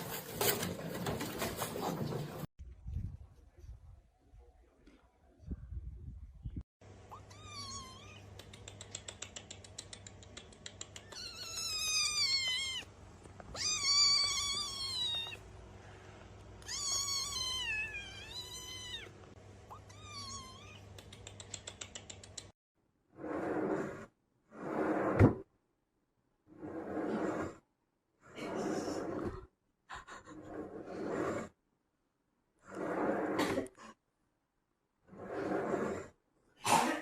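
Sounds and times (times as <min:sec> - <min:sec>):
cat meowing: 0:07.1 - 0:08.3, 0:11.0 - 0:12.9, 0:13.5 - 0:15.4, 0:16.6 - 0:20.9.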